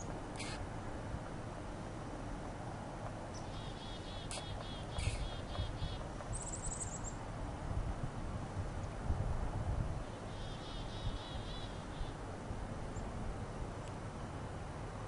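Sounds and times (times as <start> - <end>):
small birds chirping: 0.0 - 0.6, 3.3 - 7.2, 10.0 - 12.2
low rumble of wind: 0.0 - 15.0
high-pitched bird trill: 3.4 - 7.2.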